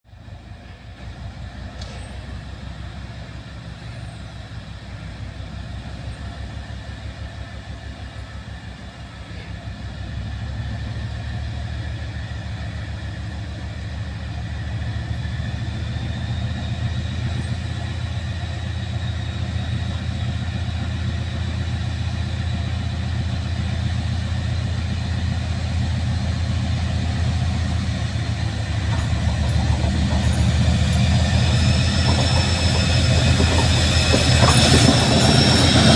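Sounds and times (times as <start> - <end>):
diesel locomotive engine throbbing: 0.1 - 35.9
high whine: 23.6 - 35.9.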